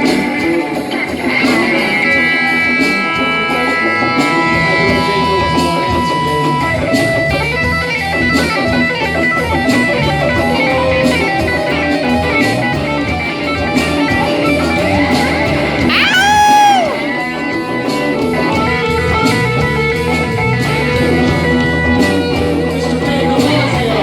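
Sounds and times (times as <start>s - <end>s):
drum beat: 0.0s - 17.5s
electric guitar: 0.0s - 24.0s
live band playing: 0.0s - 24.0s.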